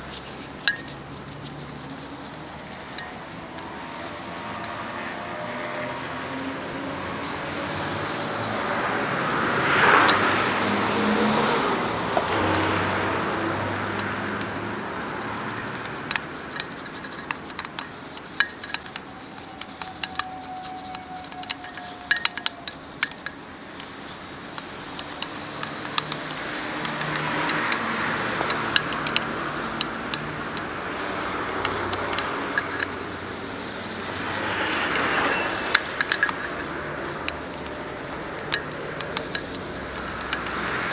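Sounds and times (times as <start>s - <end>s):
sharp clicks of shop work: 0.0s - 40.9s
vehicles passing by: 0.0s - 40.9s
light metallic clinks: 0.1s - 4.8s, 16.0s - 23.4s, 24.9s - 40.9s.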